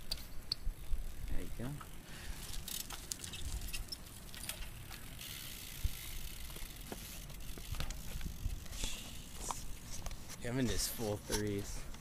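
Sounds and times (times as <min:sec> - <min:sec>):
bike hub ticking: 0:00.0 - 0:12.0.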